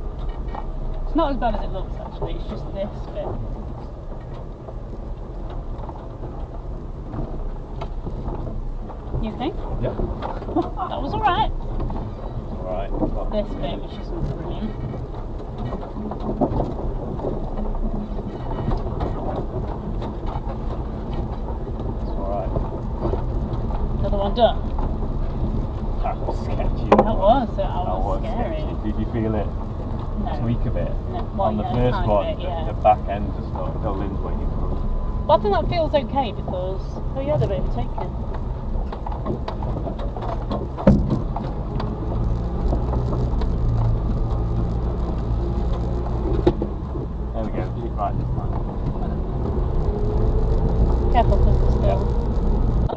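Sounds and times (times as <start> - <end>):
body and suspension rattles: 0.0 - 52.9
engine and tyre rumble: 0.0 - 52.9
sharp thump: 40.8 - 41.5.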